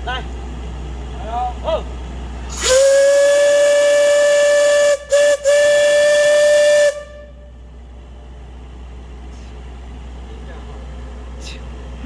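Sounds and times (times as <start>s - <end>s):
steam hissing: 2.4s - 7.3s
steam whistle blowing: 2.5s - 7.5s.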